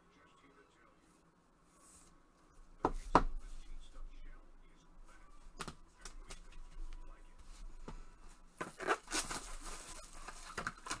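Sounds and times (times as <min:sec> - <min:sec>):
packaging rustling: 0:07.8 - 0:11.0.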